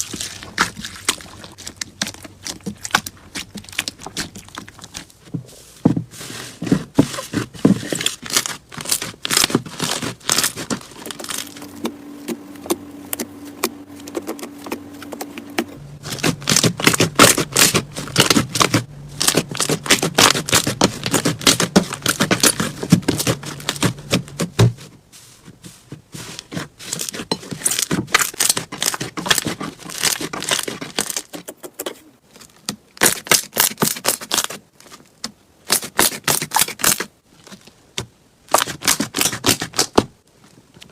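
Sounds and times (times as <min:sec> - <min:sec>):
slime crackling and popping: 0:08.0 - 0:11.7, 0:16.0 - 0:24.0.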